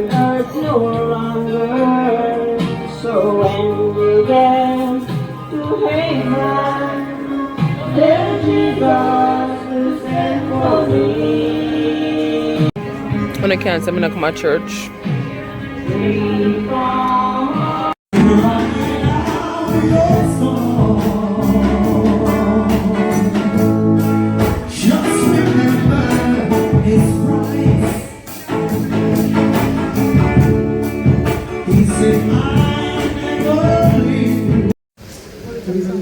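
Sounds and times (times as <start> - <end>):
gospel song with band: 0.0 - 13.0, 15.0 - 34.7
percussion beat: 18.1 - 34.7.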